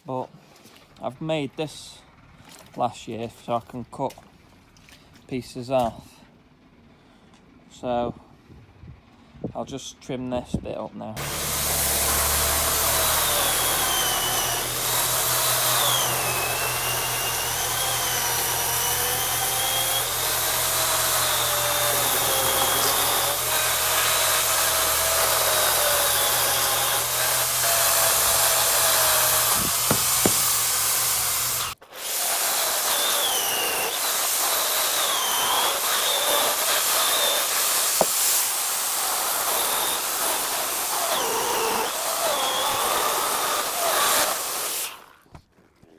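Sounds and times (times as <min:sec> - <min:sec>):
chainsaw cutting through log: 0:11.2 - 0:45.3.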